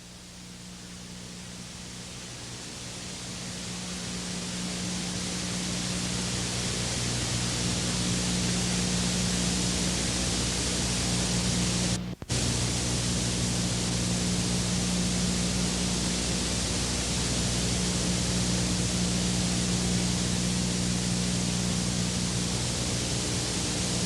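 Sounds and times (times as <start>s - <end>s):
low even hum: 0.0s - 24.0s
steady hiss: 0.0s - 24.0s.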